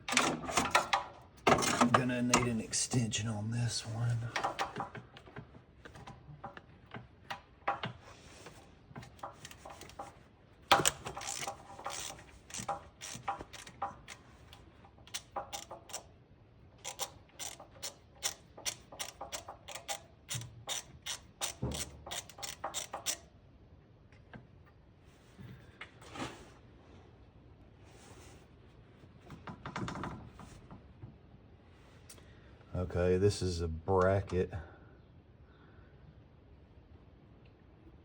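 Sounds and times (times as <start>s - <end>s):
hand ratchet clicking: 10.7s - 14.3s, 15.0s - 16.1s, 16.8s - 23.3s.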